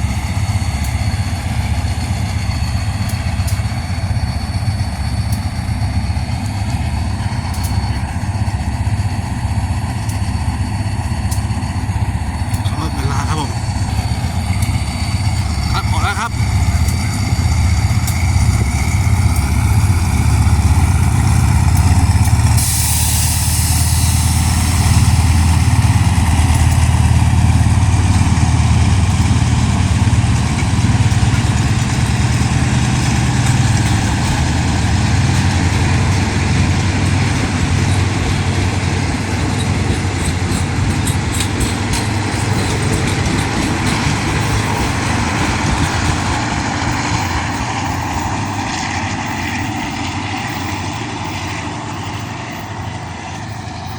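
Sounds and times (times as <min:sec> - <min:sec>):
diesel locomotive engine rumbling: 0:00.0 - 0:53.9
burst of hiss: 0:22.6 - 0:25.6.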